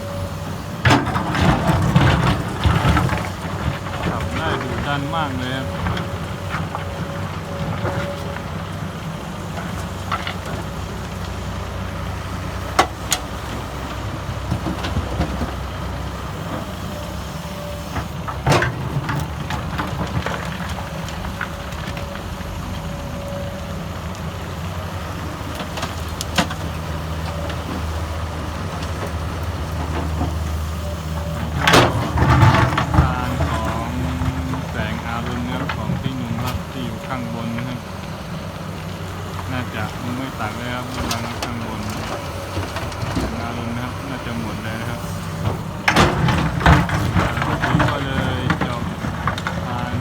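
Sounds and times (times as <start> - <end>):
excavator diesel engine running: 0.0 - 50.0
bucket knocks and clanks: 31.3 - 37.1, 45.8 - 50.0.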